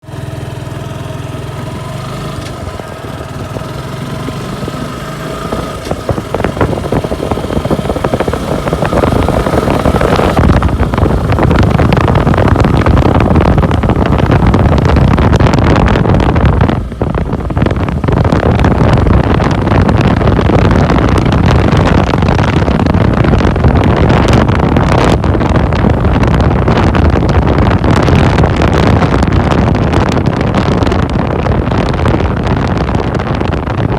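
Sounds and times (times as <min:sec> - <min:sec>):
motorcycle engine idling: 0:00.0 - 0:22.8
motorcycle accelerating: 0:00.0 - 0:33.9
rushing wind: 0:00.0 - 0:33.9.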